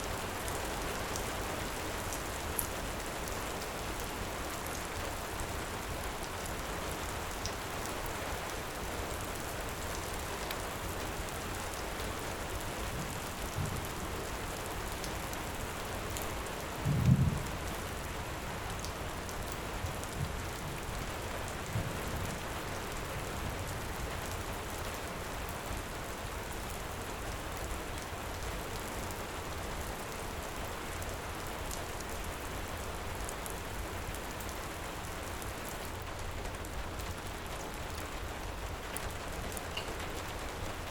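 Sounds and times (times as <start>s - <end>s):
low thunder rumbles: 16.9s - 17.8s.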